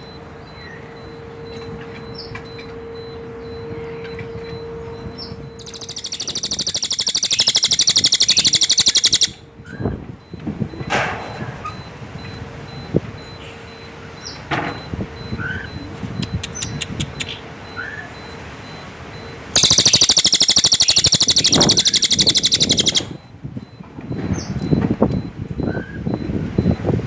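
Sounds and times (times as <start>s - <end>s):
rapid rattling bird trill: 5.2s - 9.4s, 19.5s - 23.2s
bird chirps and whistles: 5.2s - 9.8s, 19.6s - 23.2s
fast ticking bird notes: 5.5s - 9.4s, 16.2s - 17.5s, 19.5s - 23.2s.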